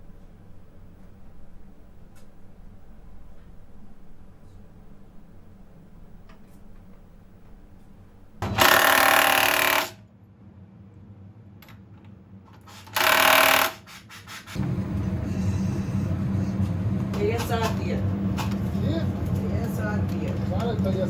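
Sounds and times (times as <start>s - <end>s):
power tool bursts: 8.4s - 10.0s, 12.7s - 14.1s
low engine rumble: 14.6s - 21.0s.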